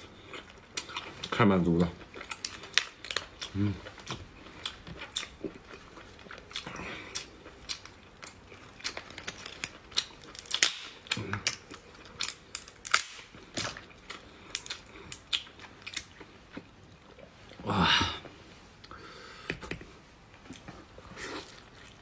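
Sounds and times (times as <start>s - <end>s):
wet chewing: 0.0s - 17.6s.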